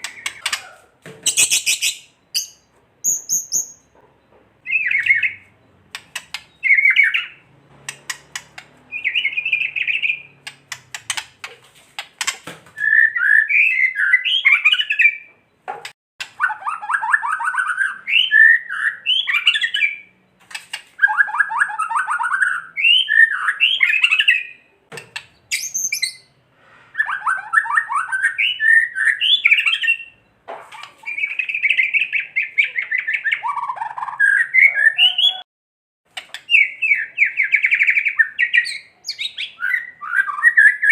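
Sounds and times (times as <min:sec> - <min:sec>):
bird singing rapid phrases: 0:00.0 - 0:26.4, 0:27.0 - 0:35.4, 0:36.1 - 0:40.9
sharp clicks: 0:05.9 - 0:06.6, 0:07.8 - 0:08.8, 0:10.4 - 0:12.5.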